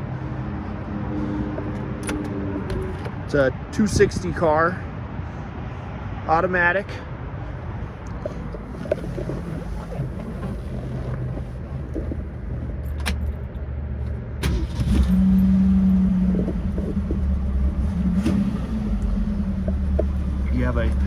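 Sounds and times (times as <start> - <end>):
car engine idling: 1.6 - 3.5, 7.9 - 21.0.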